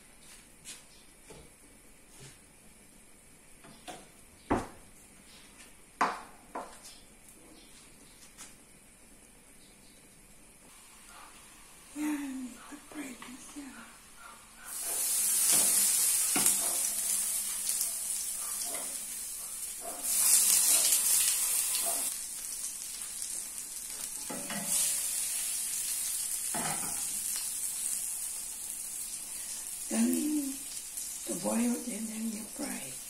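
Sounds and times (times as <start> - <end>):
hot dogs sizzling in oil: 10.7 - 13.1, 14.0 - 33.0
chopsticks tapping a pan: 15.5 - 18.0.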